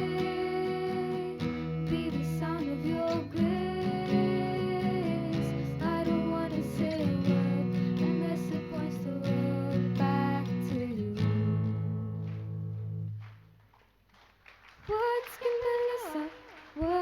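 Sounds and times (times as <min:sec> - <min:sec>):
strummed acoustic guitar: 0:00.0 - 0:13.6.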